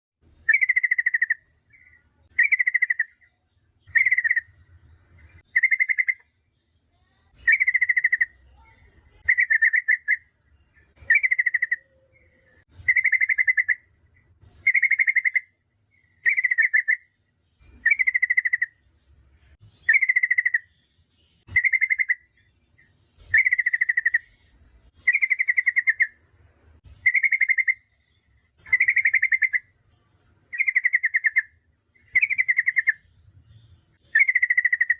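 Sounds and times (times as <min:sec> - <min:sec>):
bulbul chattering call: 0:00.4 - 0:04.6, 0:05.4 - 0:06.3, 0:11.0 - 0:13.9, 0:19.8 - 0:20.8, 0:26.9 - 0:34.9.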